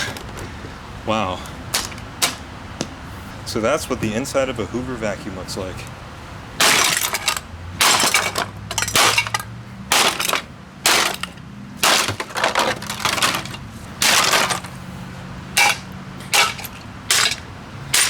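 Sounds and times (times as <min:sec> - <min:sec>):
vacuum cleaner parts clattering: 0:06.6 - 0:14.8.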